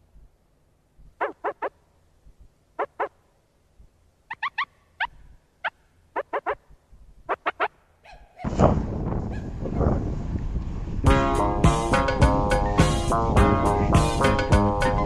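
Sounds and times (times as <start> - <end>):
bird calling in harsh notes: 1.1 - 1.8, 2.7 - 3.2, 4.2 - 8.5.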